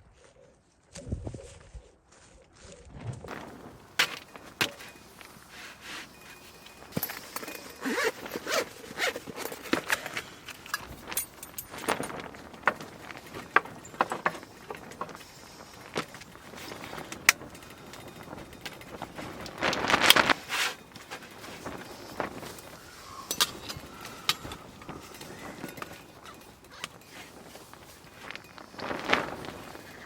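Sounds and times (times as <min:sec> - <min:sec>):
gear clicking and rustling: 0:02.6 - 0:30.0
zipper being pulled: 0:05.5 - 0:15.1.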